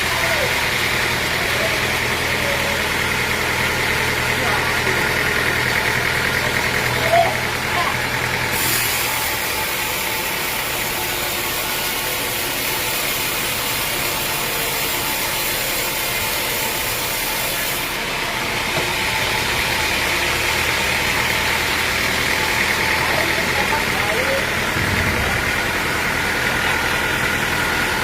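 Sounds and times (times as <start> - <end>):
sawmill machinery running: 0.0 - 28.0
low hum: 24.7 - 27.4.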